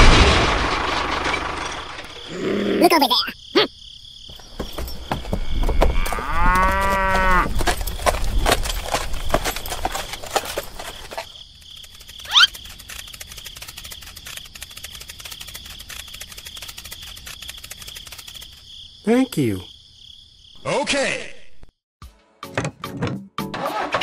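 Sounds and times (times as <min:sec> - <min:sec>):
high insect drone: 0:02.1 - 0:20.6
cow mooing: 0:06.0 - 0:07.6.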